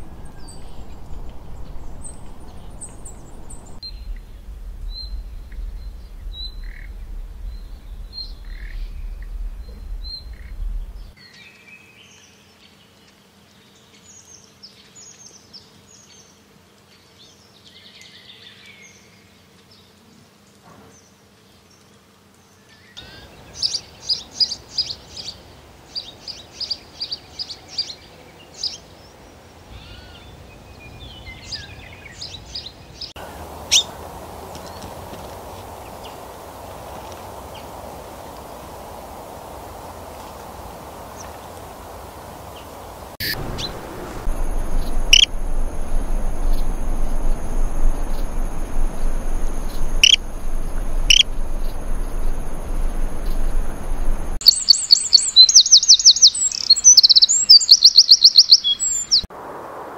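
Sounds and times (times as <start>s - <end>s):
birds chirping and calling: 0.0s - 11.2s, 29.7s - 37.8s, 41.0s - 59.2s
low rumble: 0.0s - 11.2s, 33.2s - 54.4s.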